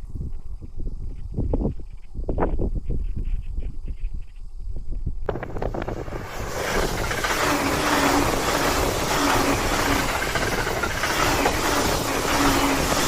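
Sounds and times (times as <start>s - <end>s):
low hum: 5.3s - 13.0s
train wheels rushing on rail: 5.3s - 13.0s.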